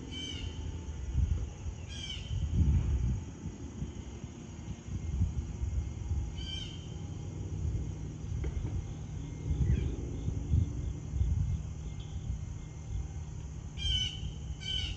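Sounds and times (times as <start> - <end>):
low outdoor rumble: 0.0 - 14.9
bird call: 13.8 - 14.9.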